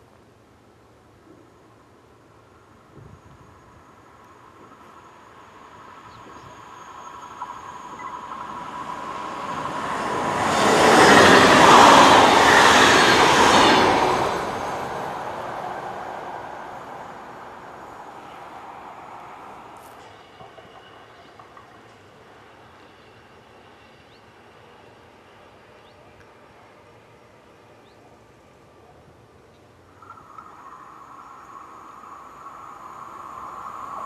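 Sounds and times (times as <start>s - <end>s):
faint steady tone: 0.0s - 9.7s, 14.6s - 34.0s
train passing with rail noise: 0.0s - 34.0s.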